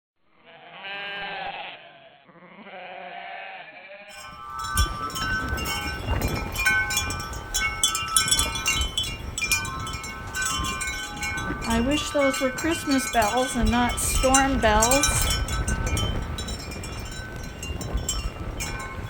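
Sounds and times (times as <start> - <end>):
sheep bleating: 0.3 - 4.1
gusting wind on microphone: 4.1 - 19.0
wind chimes ringing: 4.1 - 19.0.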